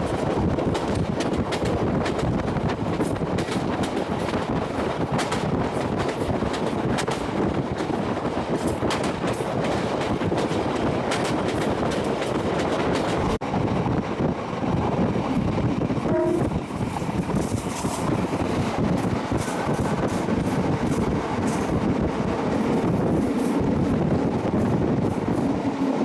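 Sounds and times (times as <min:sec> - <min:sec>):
wheels clicking over rail joints: 0:00.0 - 0:13.4
train rumbling along track: 0:00.0 - 0:26.0.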